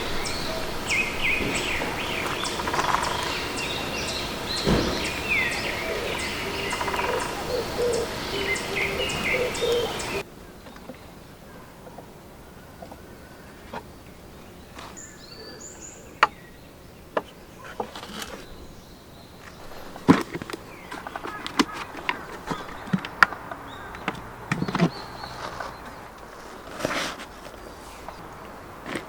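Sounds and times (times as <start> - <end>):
high bird chirps: 0.0 - 10.8.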